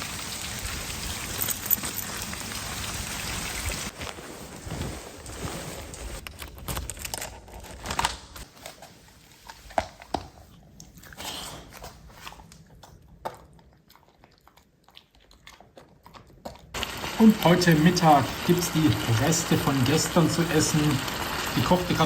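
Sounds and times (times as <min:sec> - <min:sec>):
crunching and clicking: 0:06.2 - 0:08.9
rain hiss: 0:16.8 - 0:22.0.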